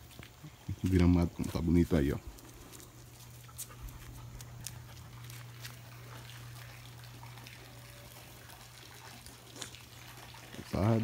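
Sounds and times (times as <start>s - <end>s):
steady low hum: 0.0s - 8.4s
faint trickling water: 0.0s - 11.0s.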